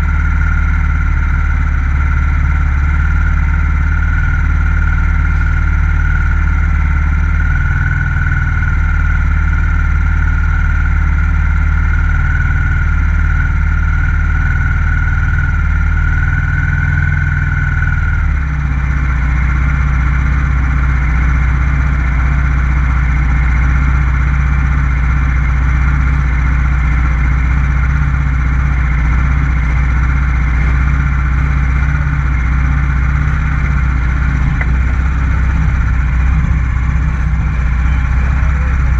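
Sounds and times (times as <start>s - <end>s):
motorcycle engine at speed: 0.0s - 38.9s
high whine: 21.8s - 38.9s.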